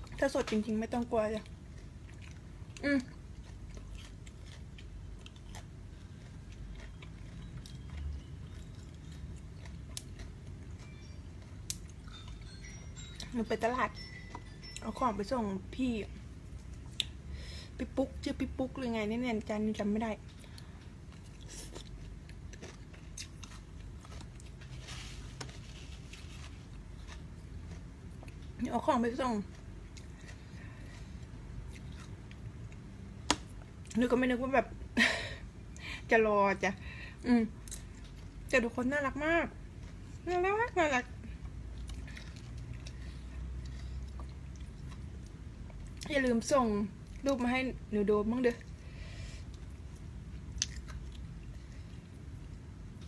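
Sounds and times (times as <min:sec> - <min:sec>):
person chewing shrimp: 0:01.4 - 0:12.5, 0:20.3 - 0:28.6, 0:29.4 - 0:34.0, 0:41.4 - 0:46.1, 0:48.6 - 0:53.0
chewing clicks: 0:01.8 - 0:12.3, 0:50.5 - 0:51.3
short rustle: 0:24.6 - 0:26.7.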